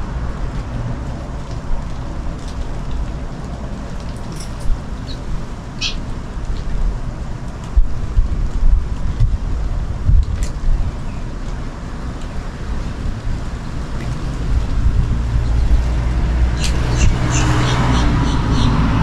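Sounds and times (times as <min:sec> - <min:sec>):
low rumble: 0:13.0 - 0:17.3.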